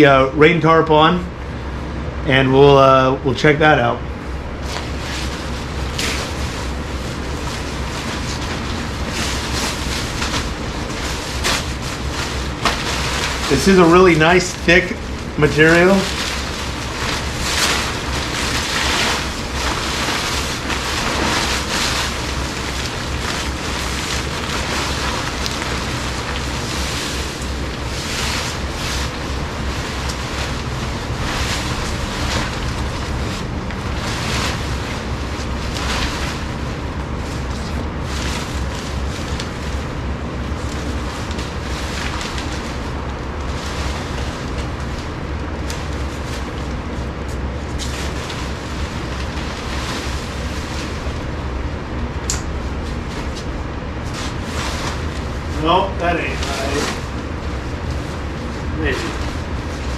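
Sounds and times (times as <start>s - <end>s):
nylon tent fly rustling: 4.4s - 59.9s.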